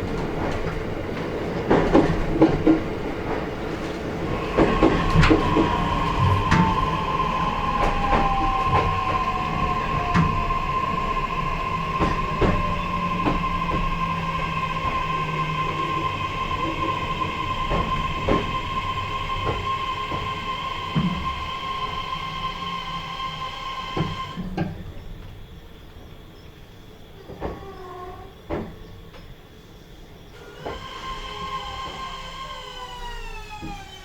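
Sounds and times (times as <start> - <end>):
wheels clicking over rail joints: 0.0 - 22.7
train motor squealing: 4.2 - 24.4, 30.3 - 34.0.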